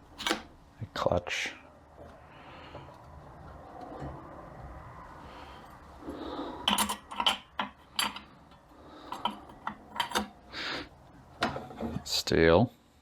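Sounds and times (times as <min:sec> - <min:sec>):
metal clutch plates clinking: 0:06.7 - 0:10.4.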